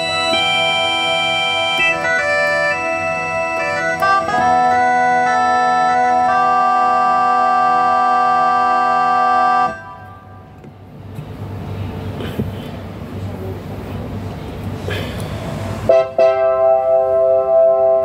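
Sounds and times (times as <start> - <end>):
keyboard playing sustained chords: 0.0 - 11.0, 15.6 - 18.0.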